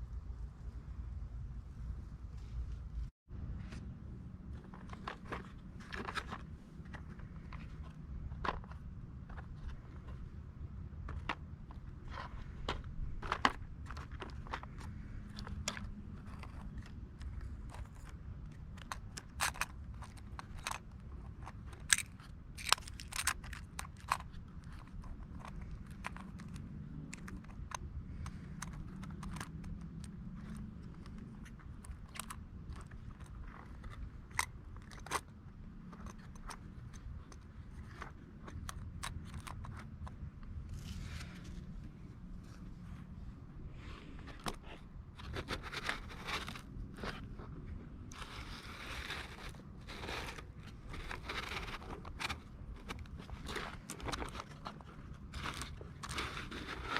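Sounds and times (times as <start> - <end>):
low steady hum: 0.0 - 56.9
toy plastic parts clicking: 13.1 - 40.3.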